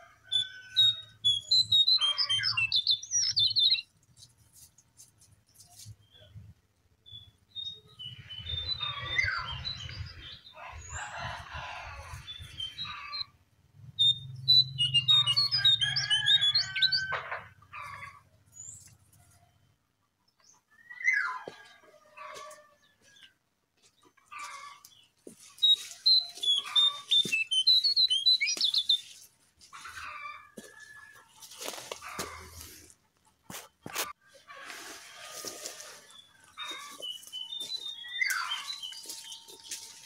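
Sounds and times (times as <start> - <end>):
small birds chirping: 0.4 - 6.4, 7.0 - 11.2, 12.1 - 13.3, 14.0 - 17.0, 23.9 - 30.9, 36.0 - 40.0.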